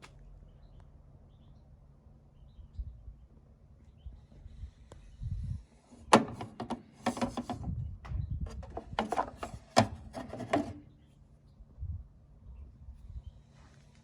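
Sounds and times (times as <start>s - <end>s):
hard objects knocking and scraping: 6.0s - 7.7s, 8.5s - 10.8s.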